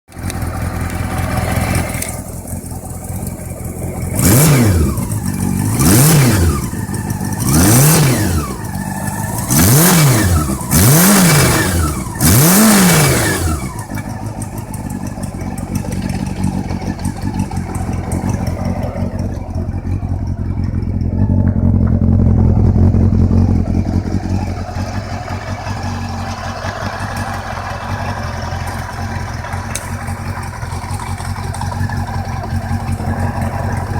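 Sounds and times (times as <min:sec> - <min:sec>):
engine knocking: 0:00.1 - 0:33.9
engine revving blips: 0:00.1 - 0:33.9
motorcycle engine idling: 0:00.1 - 0:33.9.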